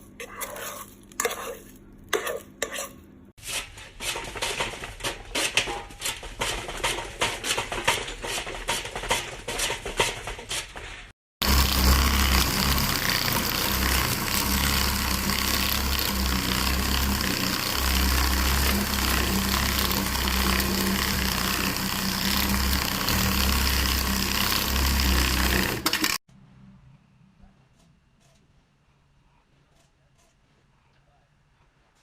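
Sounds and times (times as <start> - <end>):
machine running loudly: 11.4 - 26.2.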